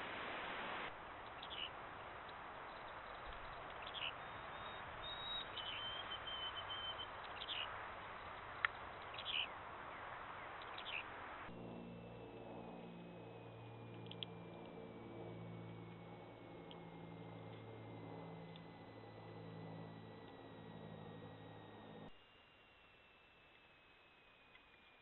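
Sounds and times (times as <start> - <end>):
microphone hiss: 0.0 - 11.6
low hum: 0.0 - 25.0
bird trill: 1.3 - 1.7, 2.7 - 11.1
short high bird calls: 3.8 - 7.7
sharp click: 14.0 - 14.3.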